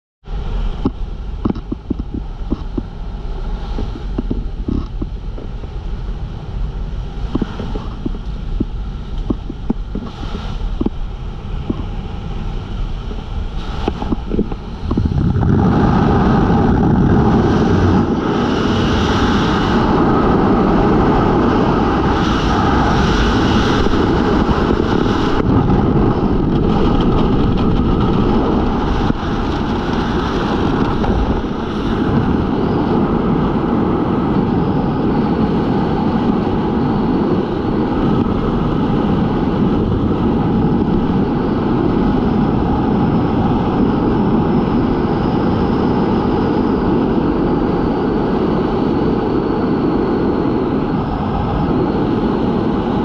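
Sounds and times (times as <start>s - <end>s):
loud rush of wind: 0.2s - 53.0s
plane engine and airflow: 0.2s - 53.0s
scattered clicks: 0.8s - 2.9s.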